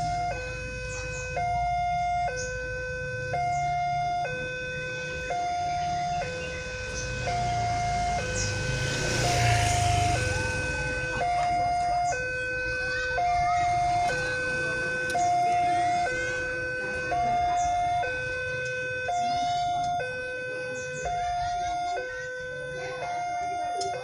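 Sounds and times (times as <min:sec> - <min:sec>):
low traffic rumble: 0:00.0 - 0:24.0
two-tone crossing alarm: 0:00.0 - 0:24.0
vehicle passing: 0:00.0 - 0:24.0.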